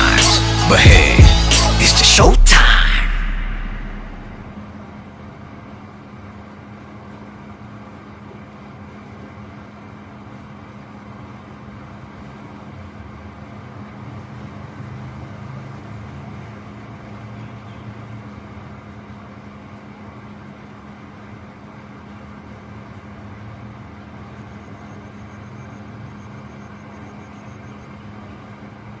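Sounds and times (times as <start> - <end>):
mechanical drone with low hum: 0.0 - 5.9.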